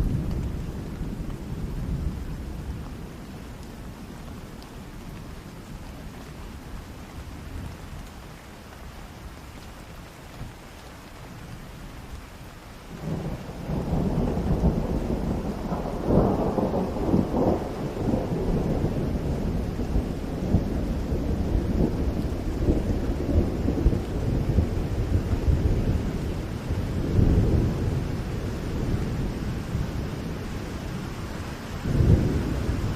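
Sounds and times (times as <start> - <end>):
thunder rumbling: 0.0 - 3.4, 12.9 - 32.9
rain falling in forest: 0.0 - 32.9.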